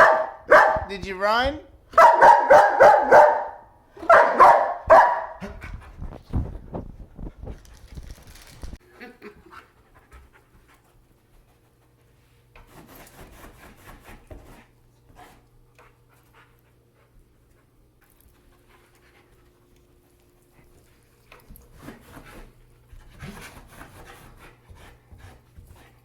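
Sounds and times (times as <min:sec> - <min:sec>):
dog panting: 0:07.2 - 0:26.0.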